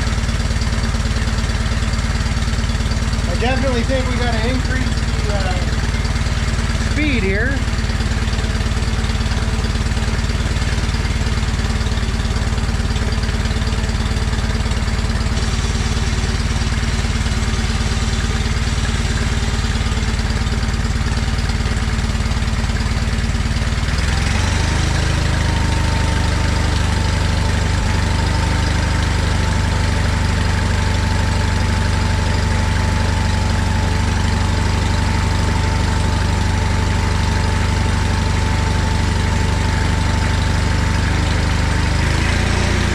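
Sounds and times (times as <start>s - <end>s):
garden tractor engine running: 0.0s - 42.9s.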